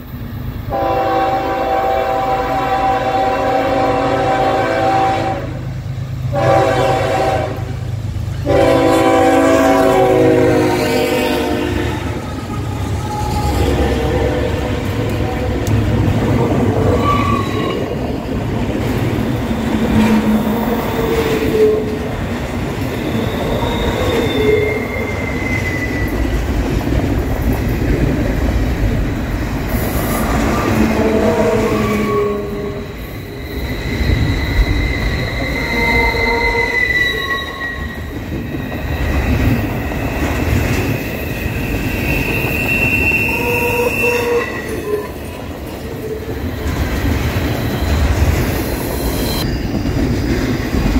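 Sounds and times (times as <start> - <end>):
train wheels rumbling on rails: 0.0 - 50.9
wheel squeals: 22.8 - 26.3, 32.8 - 45.2, 46.4 - 49.8.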